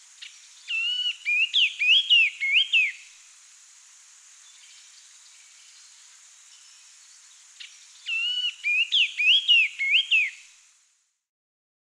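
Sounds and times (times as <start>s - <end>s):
faint hiss: 0.0s - 11.3s
bird singing whistled phrases: 0.7s - 3.0s, 8.1s - 10.4s.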